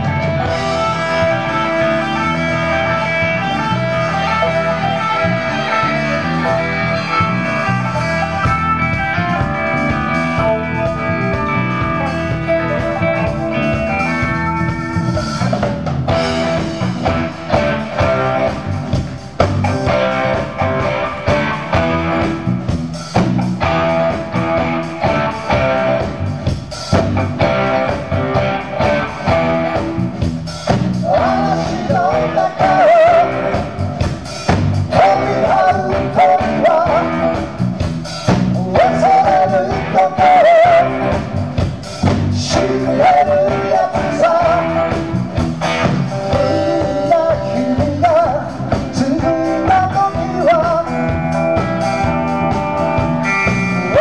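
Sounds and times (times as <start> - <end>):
wavering lead melody: 0.0 - 30.3
rock band playing live: 0.0 - 54.0.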